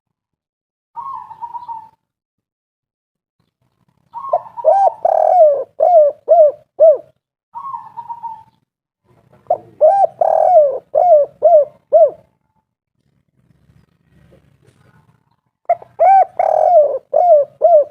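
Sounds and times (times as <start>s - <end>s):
dove cooing: 1.0s - 2.0s, 4.1s - 12.4s, 15.7s - 17.9s.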